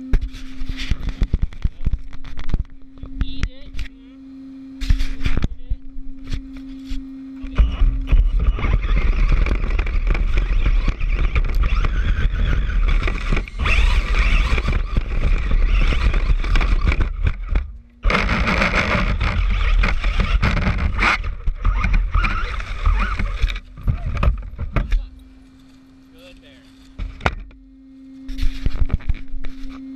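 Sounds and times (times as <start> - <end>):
rc car tyres clattering over ground: 7.4 - 25.7.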